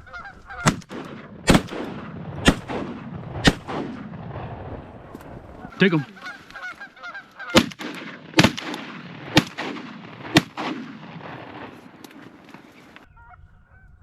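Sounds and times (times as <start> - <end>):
shotgun blasts with echo: 0.6 - 5.0, 7.5 - 13.0.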